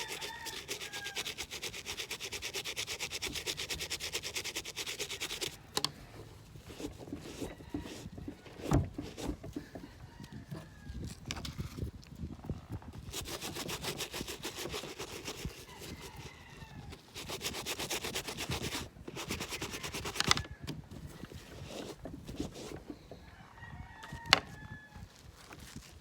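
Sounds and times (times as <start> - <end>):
scrubbing on a sneaker: 0.0 - 5.6, 13.0 - 20.2, 21.0 - 22.9.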